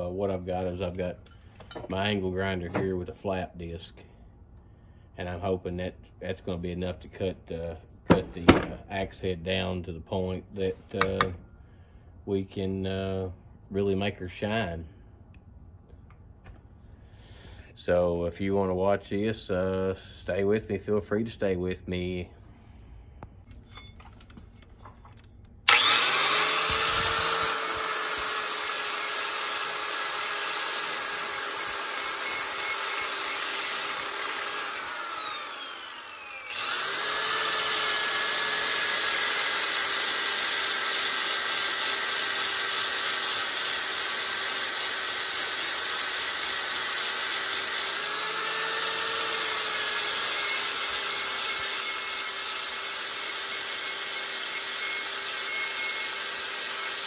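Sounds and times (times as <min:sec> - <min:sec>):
angle grinder grinding metal: 0:25.7 - 0:57.0.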